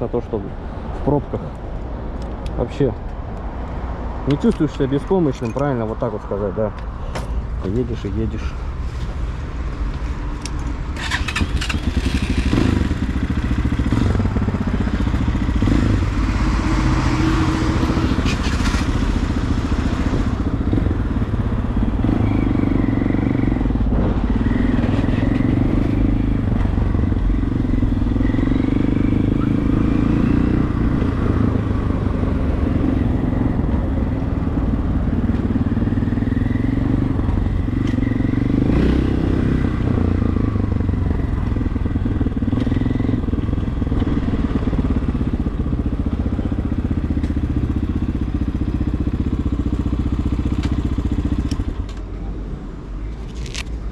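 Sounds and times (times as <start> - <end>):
motorcycle engine revving: 11.0 - 51.8.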